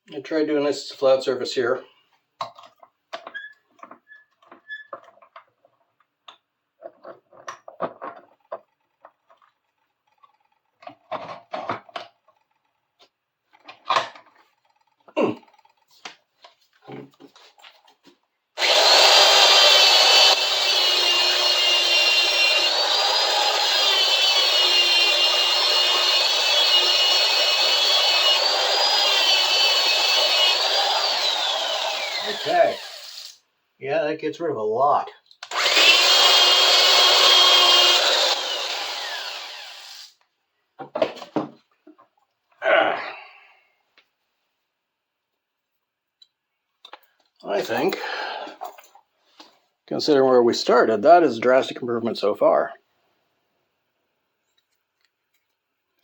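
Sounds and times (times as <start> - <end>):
power tool whining: 18.6 - 33.4, 35.4 - 40.2.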